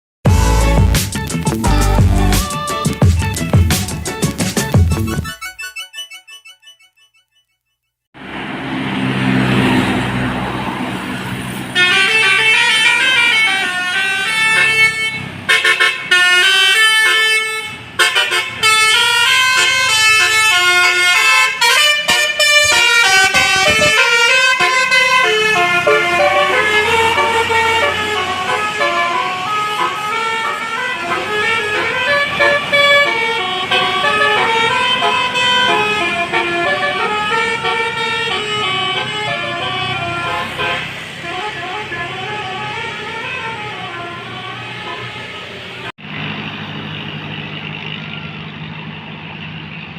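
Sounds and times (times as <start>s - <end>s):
bus horn playing fast tune: 0.3s - 4.3s, 11.7s - 45.9s.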